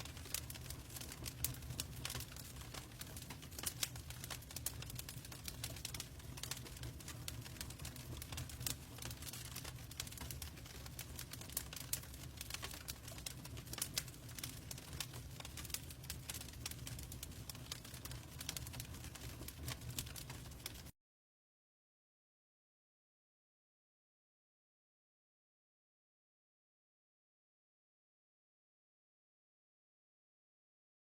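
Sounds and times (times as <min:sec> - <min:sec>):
wood fire crackling and popping: 0:00.0 - 0:20.9.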